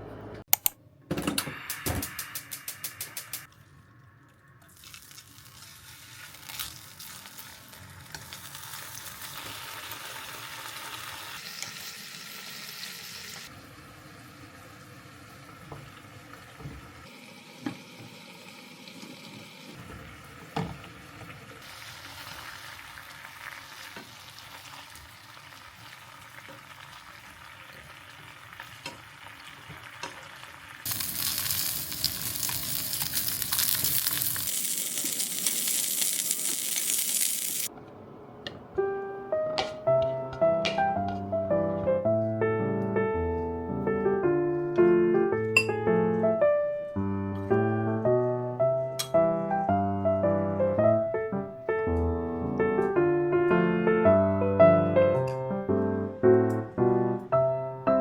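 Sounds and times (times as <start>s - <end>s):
sharp clicks: 0.5s - 0.8s, 1.7s - 3.5s
food sizzling in a pan: 4.7s - 37.7s.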